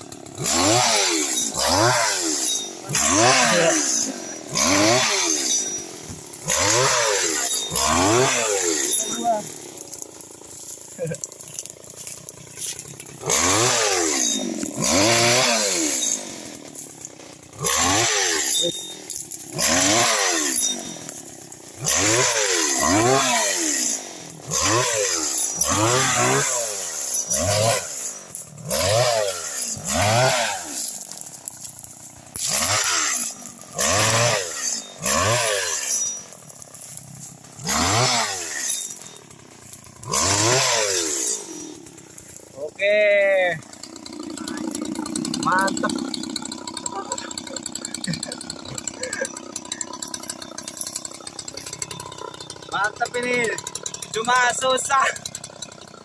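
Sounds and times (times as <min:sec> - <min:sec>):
small engine revving: 0:00.0 - 0:55.4.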